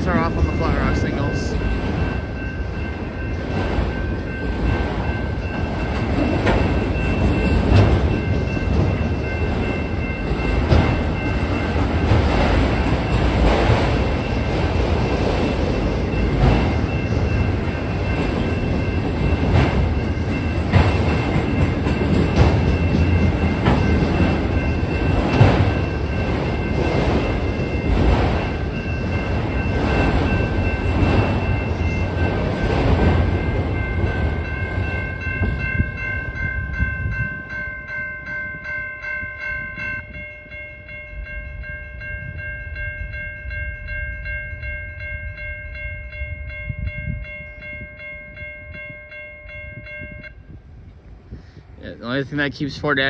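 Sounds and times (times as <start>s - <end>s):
freight train wheels on rail: 0.0s - 53.0s
wheels clacking over rail joints: 2.7s - 35.7s.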